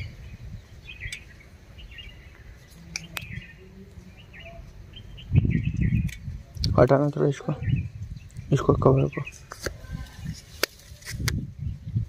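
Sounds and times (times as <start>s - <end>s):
handling or wind rumble: 0.0s - 12.0s
small birds chirping: 0.0s - 12.0s.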